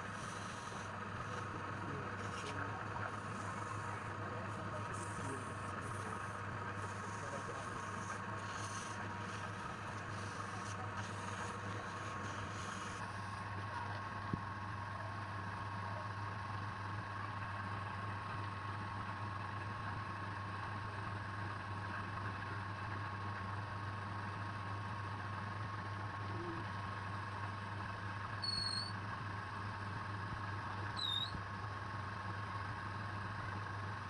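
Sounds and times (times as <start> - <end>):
wood lathe motor humming: 0.0 - 13.6.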